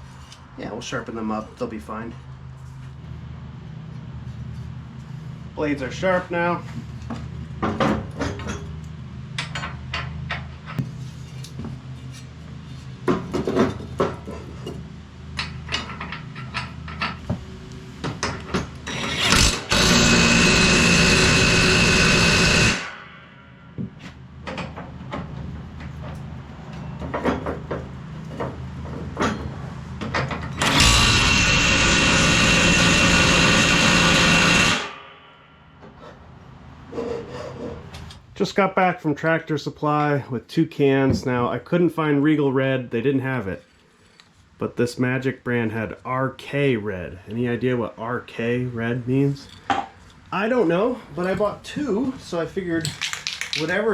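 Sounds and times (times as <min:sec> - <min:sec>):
power tool whining: 0:18.3 - 0:24.0, 0:30.4 - 0:36.0.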